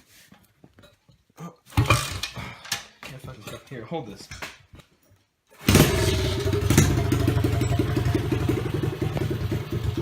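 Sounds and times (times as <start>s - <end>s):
motorbike engine idling: 5.7s - 10.0s.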